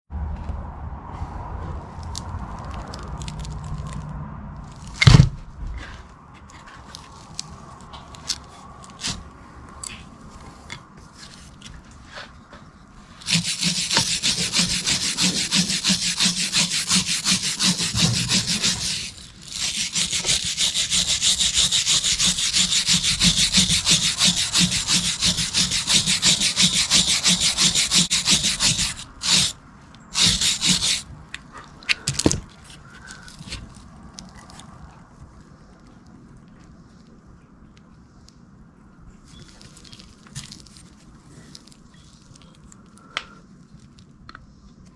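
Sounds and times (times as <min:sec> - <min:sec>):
back-and-forth scraping strokes: 0:05.8 - 0:33.8.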